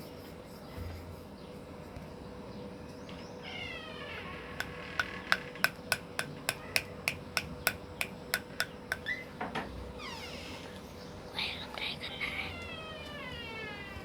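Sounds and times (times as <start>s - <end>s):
sharp taps with ringing ping: 5.0s - 9.1s.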